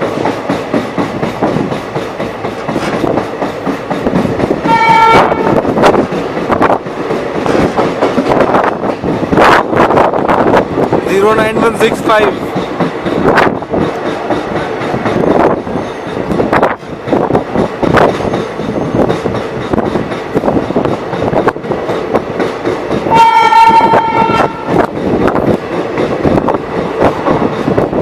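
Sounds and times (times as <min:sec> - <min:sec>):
train wheels clattering over joints: 0:00.0 - 0:28.0
train horn: 0:04.6 - 0:05.6, 0:23.1 - 0:24.8.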